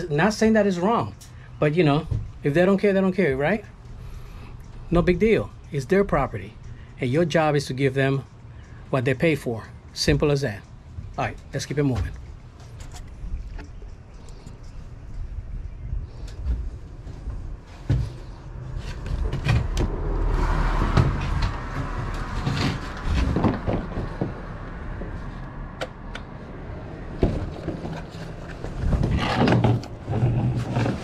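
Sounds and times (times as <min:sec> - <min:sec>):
low steady hum: 0:00.0 - 0:31.0
knocks and clunks: 0:19.0 - 0:26.0.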